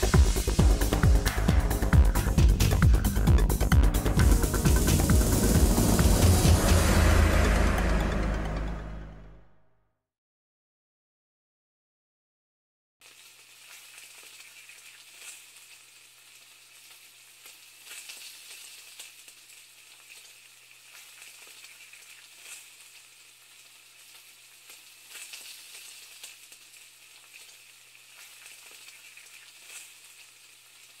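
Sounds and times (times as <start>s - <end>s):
food sizzling in a pan: 0.0s - 8.0s, 13.0s - 31.0s
low hum: 0.0s - 9.7s.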